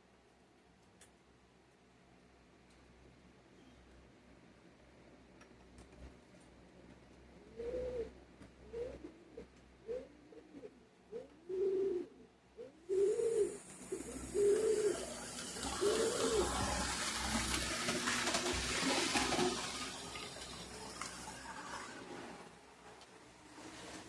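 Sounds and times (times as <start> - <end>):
bird cooing: 7.5 - 16.8
rushing noise with light clicks: 13.6 - 24.0.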